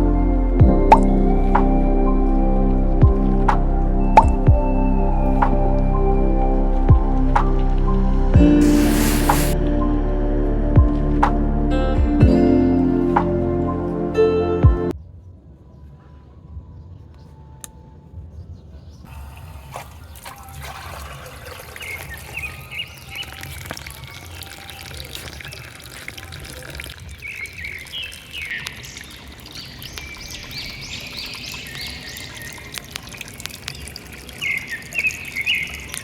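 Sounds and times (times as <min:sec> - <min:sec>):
water trickling from pump outlet: 0:19.1 - 0:36.0
birds chirping: 0:21.2 - 0:36.0.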